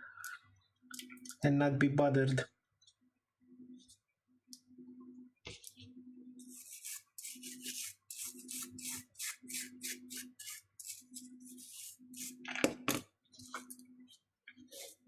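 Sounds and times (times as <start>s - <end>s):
brush scrubbing strokes: 6.5s - 12.4s, 14.7s - 15.0s.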